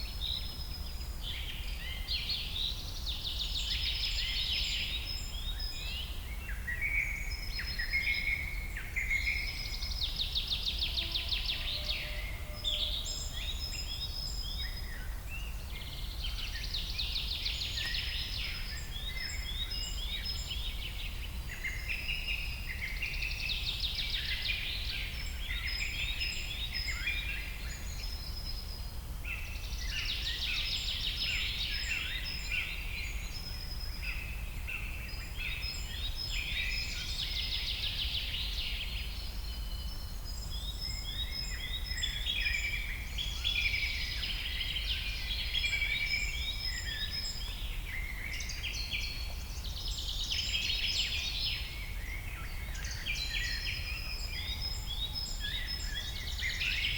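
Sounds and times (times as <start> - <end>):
small birds chirping: 13.0 - 56.9.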